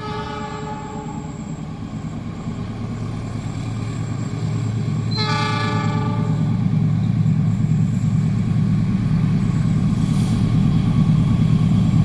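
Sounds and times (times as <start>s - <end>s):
train horn blast: 0.0s - 1.2s, 5.1s - 6.5s
train rumbling: 0.0s - 12.0s.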